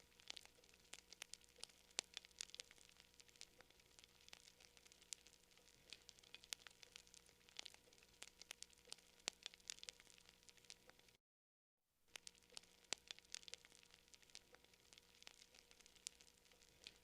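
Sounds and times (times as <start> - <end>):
campfire crackling: 0.0 - 11.2, 12.1 - 17.0.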